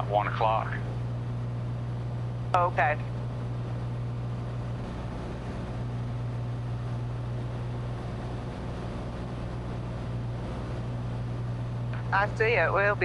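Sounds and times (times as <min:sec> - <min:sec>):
airplane engine droning: 0:00.0 - 0:13.0
airflow noise: 0:03.4 - 0:12.6.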